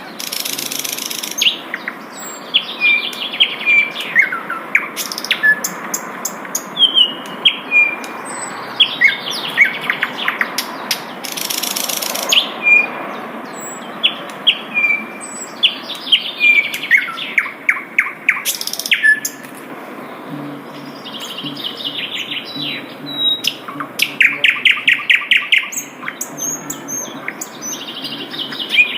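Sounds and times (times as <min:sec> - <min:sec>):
flycatcher chirps and whistles: 0:14.7 - 0:19.4, 0:21.0 - 0:28.9.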